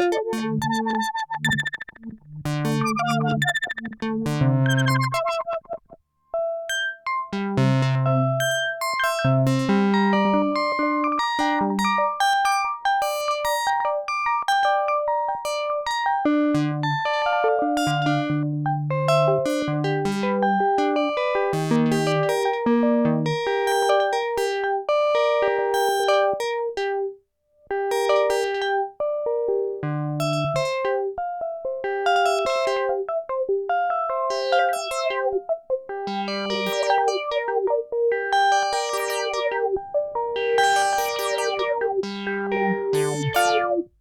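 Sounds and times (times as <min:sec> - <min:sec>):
synthesizer notes and chords: 0:00.0 - 0:12.4, 0:16.7 - 0:20.4, 0:30.0 - 0:30.9, 0:32.1 - 0:44.0.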